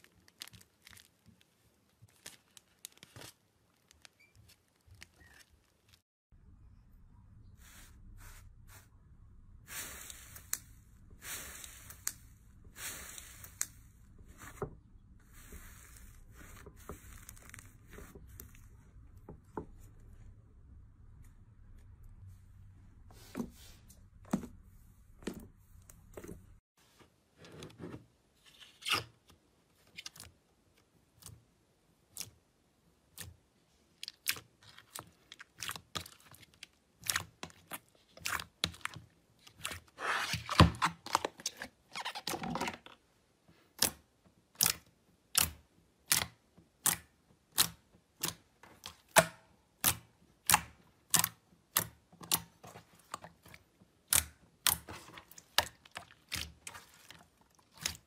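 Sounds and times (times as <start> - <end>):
crackling squelch: 9.7 - 20.2
hands squishing slime: 32.0 - 40.6, 43.7 - 49.2, 49.8 - 58.0.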